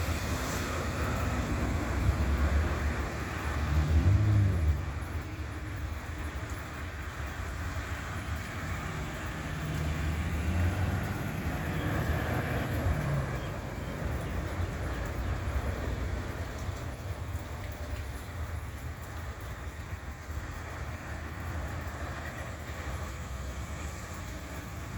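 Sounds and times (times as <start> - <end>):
vehicle passing: 0.0 - 5.4, 7.6 - 17.0
traffic on wet road: 0.0 - 24.9.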